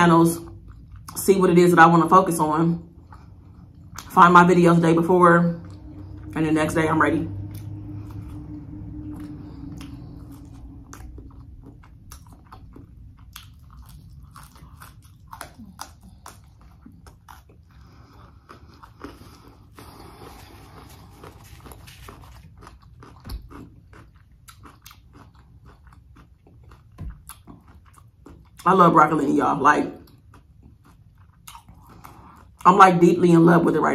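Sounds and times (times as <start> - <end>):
biting and chewing: 7.3 - 28.7, 30.0 - 32.6.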